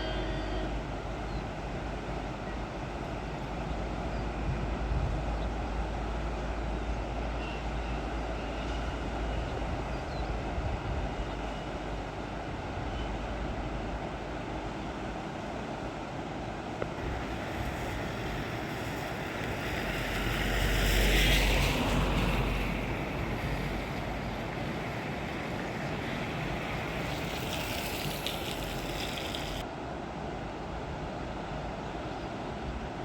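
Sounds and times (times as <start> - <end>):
river rushing in flood: 0.0 - 33.0
wind on the microphone: 9.0 - 13.8.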